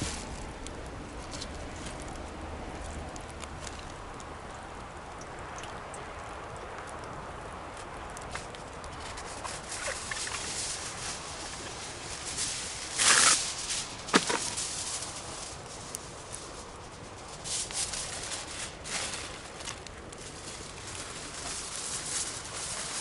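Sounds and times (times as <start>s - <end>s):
rustling burst: 0.0s - 0.6s, 9.0s - 23.0s
campfire crackling: 0.0s - 23.0s.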